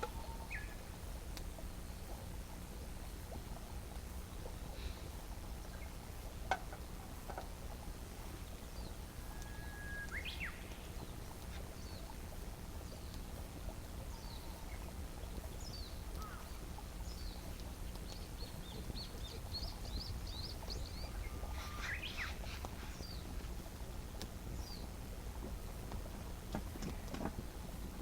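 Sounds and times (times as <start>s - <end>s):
low background hum: 0.0s - 28.0s
birds chirping: 4.5s - 23.7s
bird sweeping call: 21.0s - 23.2s.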